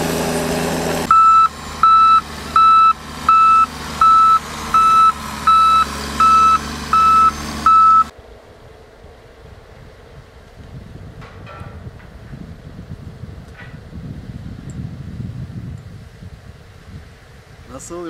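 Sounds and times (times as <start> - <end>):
low engine running: 0.0 - 17.6
reversing alarm beeping: 1.1 - 8.1.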